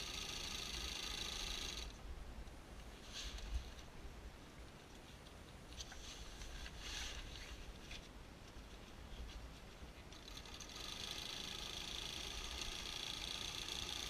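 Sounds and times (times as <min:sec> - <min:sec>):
steady low hum: 0:00.0 - 0:14.0
shower curtain rustling: 0:03.0 - 0:03.8.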